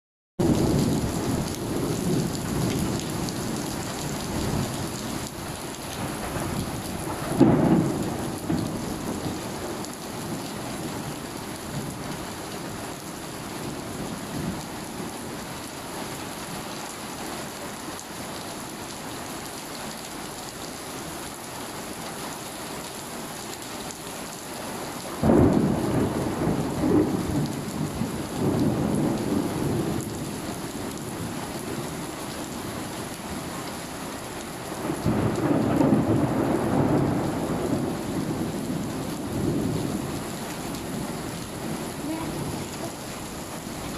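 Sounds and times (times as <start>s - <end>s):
low thunder rumbling: 0.4s - 9.9s, 25.2s - 30.4s, 34.8s - 43.9s
steady rain downpour: 0.4s - 43.9s.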